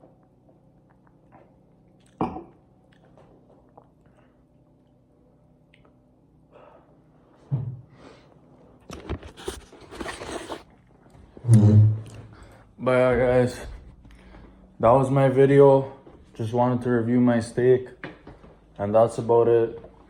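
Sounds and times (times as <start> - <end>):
person chewing: 0.2 - 5.0.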